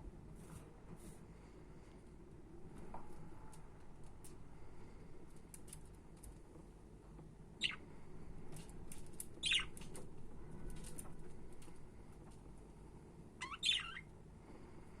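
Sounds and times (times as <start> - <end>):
budgerigars chirping: 7.6 - 7.8, 9.4 - 9.7, 13.4 - 14.1.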